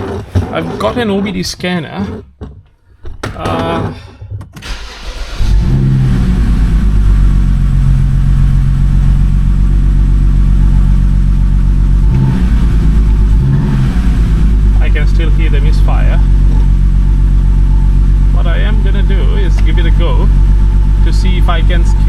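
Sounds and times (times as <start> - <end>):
car engine starting: 4.6 - 22.0
misfiring engine idling: 4.6 - 22.0.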